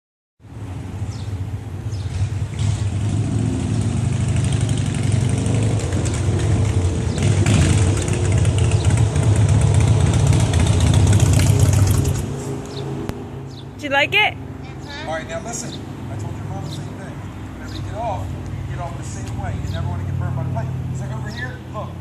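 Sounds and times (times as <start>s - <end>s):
motorcycle engine running: 1.9s - 13.2s.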